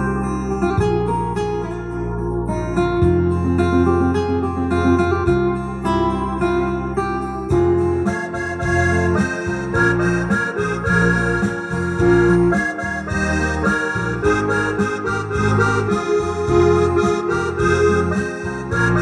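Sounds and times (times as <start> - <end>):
keyboard bass and chords: 0.0 - 19.0
keyboard accordion-like melody: 3.0 - 6.4, 7.5 - 19.0
drum beat: 8.6 - 19.0.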